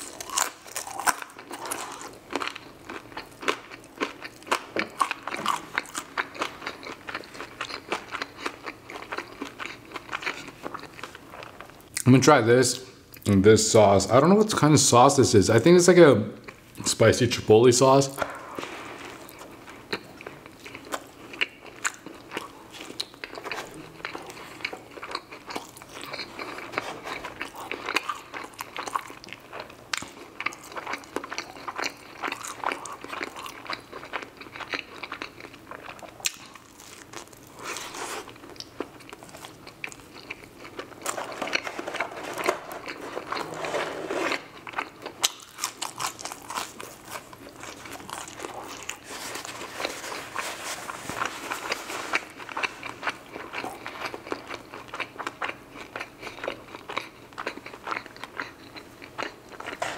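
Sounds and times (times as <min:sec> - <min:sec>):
crunchy bites: 0:00.0 - 0:08.8, 0:44.4 - 0:49.0
wet chewing: 0:44.6 - 0:50.4.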